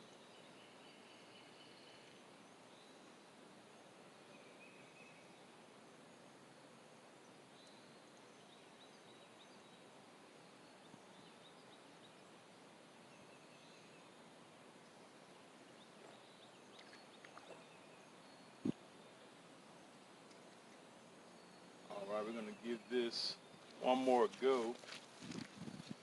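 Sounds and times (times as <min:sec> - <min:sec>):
faint high bird chirps: 0:00.0 - 0:05.5, 0:07.2 - 0:14.2, 0:20.6 - 0:24.8.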